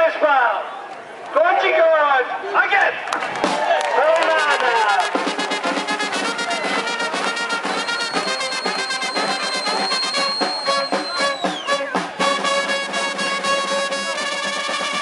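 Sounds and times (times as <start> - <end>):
brass band playing: 4.2 - 15.0.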